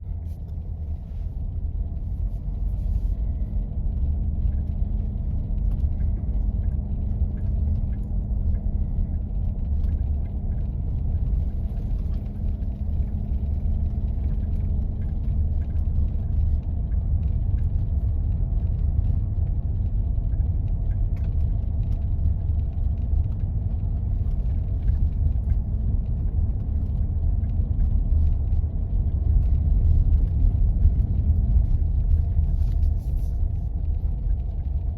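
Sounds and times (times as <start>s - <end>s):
road noise: 0.0s - 34.9s
vehicle engine rumble: 0.0s - 34.9s.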